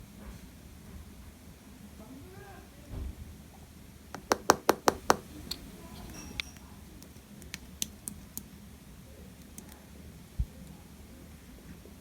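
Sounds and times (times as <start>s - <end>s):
slime clicking and popping: 4.2s - 5.6s, 7.0s - 8.5s.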